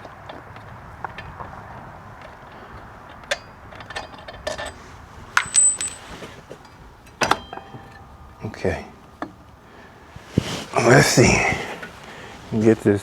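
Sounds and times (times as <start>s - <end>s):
metal tools clinking: 2.1s - 9.5s
high metallic ring: 5.4s - 8.5s.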